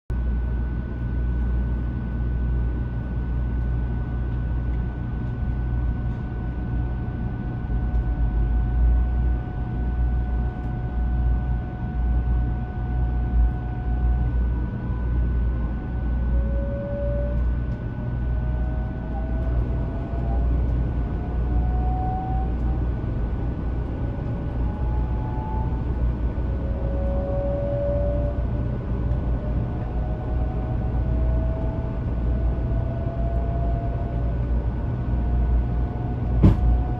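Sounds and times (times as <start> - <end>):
train inverter whining: 7.1 - 36.9
low rumble: 36.2 - 36.9.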